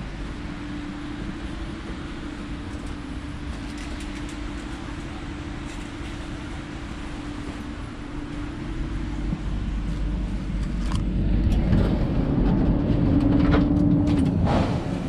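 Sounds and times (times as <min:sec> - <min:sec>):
train carriage hum: 0:00.0 - 0:15.0.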